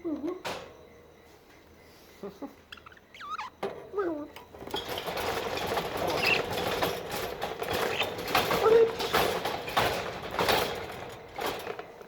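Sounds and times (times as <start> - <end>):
budgies rustling and scraping in cage: 4.5 - 12.0.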